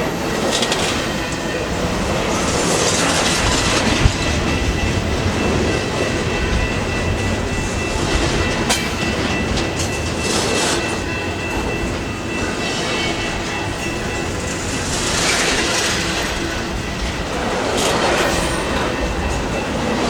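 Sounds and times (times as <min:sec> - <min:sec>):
freight train rumbling: 0:00.0 - 0:20.0
wheels clicking over rail joints: 0:00.0 - 0:20.0
sharp metal clanks: 0:17.7 - 0:20.0.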